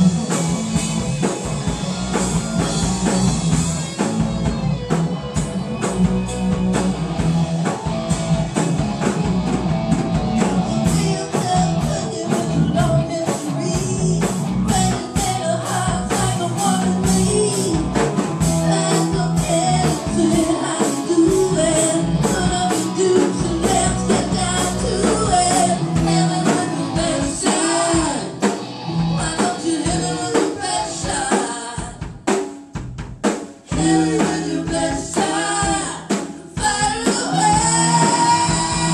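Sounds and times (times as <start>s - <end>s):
live band playing: 0.0s - 38.9s
person singing: 10.4s - 28.5s, 29.1s - 32.1s, 33.7s - 38.9s.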